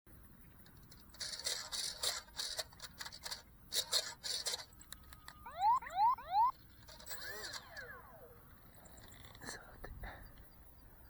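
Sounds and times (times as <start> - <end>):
rustling and scraping: 0.6 - 4.9.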